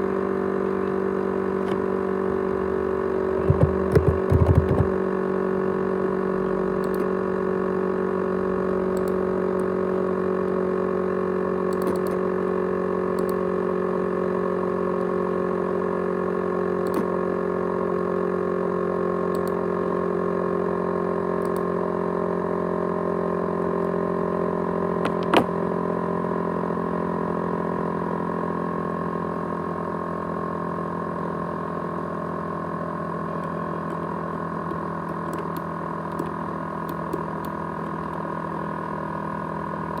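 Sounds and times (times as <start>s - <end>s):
laptop whirring hum: 0.0s - 40.0s
sharp click: 11.7s - 12.2s, 16.8s - 17.1s.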